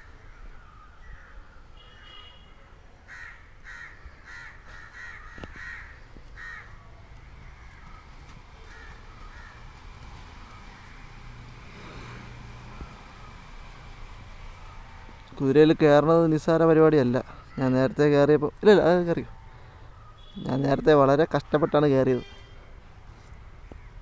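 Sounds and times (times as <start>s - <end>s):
bird calling: 3.1s - 11.3s.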